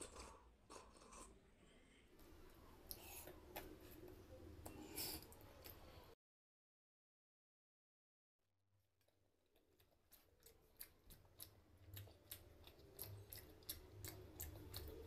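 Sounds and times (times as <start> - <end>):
close chewing with mouth clicks: 2.2 - 6.0, 9.0 - 15.0.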